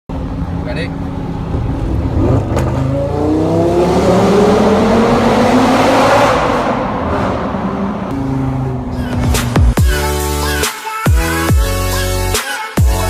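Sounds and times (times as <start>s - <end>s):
car engine revving: 0.1s - 10.0s.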